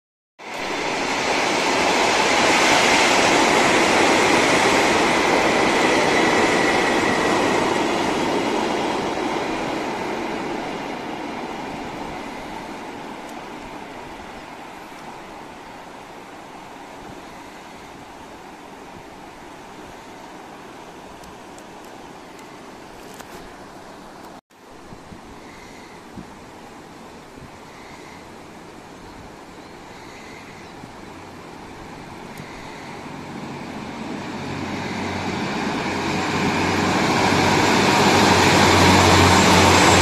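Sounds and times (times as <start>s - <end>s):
train wheels rumbling on rails: 0.4s - 20.6s, 29.9s - 40.0s.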